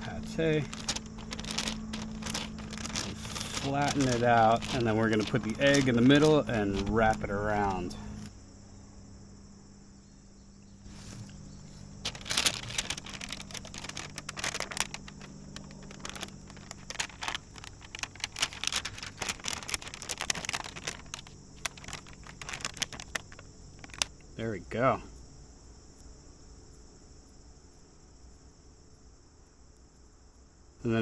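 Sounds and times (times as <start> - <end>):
wax paper crinkling: 0.0 - 8.3, 10.9 - 24.4
crickets chirping: 0.0 - 31.0.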